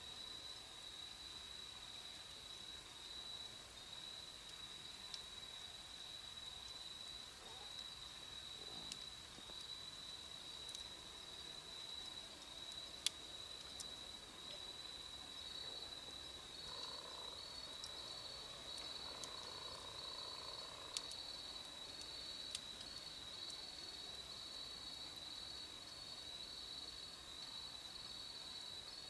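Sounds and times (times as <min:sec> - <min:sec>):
campfire pops: 0:08.7 - 0:09.8, 0:12.0 - 0:14.7, 0:16.0 - 0:24.3
high insect trill: 0:09.6 - 0:27.6.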